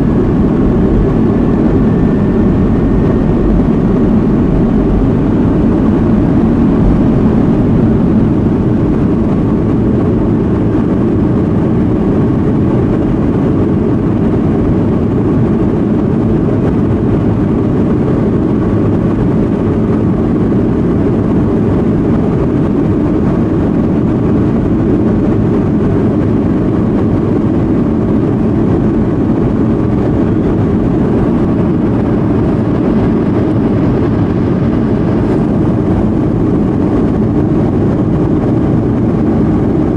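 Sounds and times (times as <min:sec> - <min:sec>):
jet engine roar in cabin: 0:00.0 - 0:39.9.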